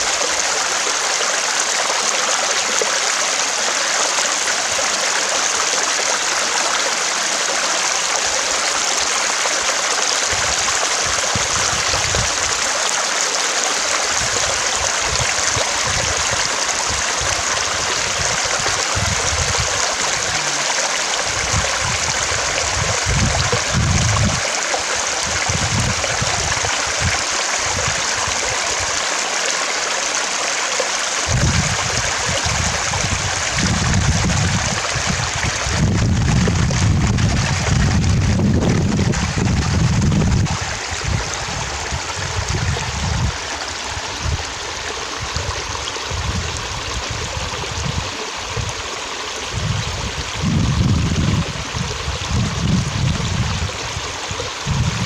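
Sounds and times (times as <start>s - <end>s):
stream water flowing: 0.0s - 55.0s
low rumbles: 35.8s - 43.3s.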